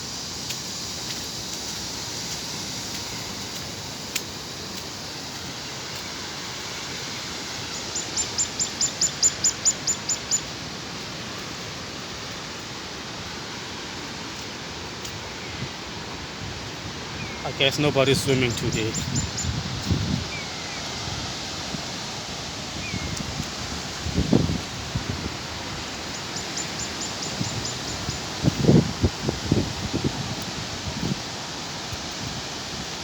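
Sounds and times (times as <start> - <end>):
bird chirping: 8.0 - 10.4
heavy rain falling: 10.5 - 33.0.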